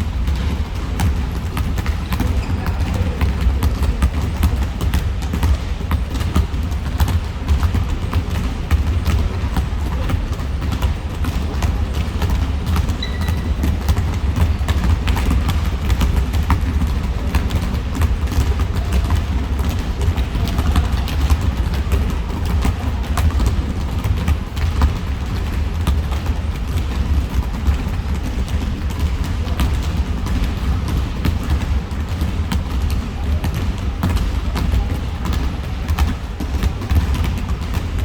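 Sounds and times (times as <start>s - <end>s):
basketball bouncing: 0.0s - 38.0s
running footsteps on court: 0.0s - 38.0s
shoe squeak: 12.9s - 13.7s.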